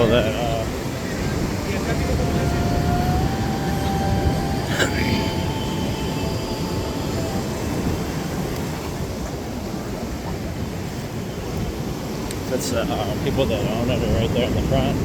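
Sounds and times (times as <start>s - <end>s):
faint steady tone: 0.0s - 11.8s
ocean surf: 0.0s - 15.0s
wind rumbling on microphone: 0.0s - 15.0s.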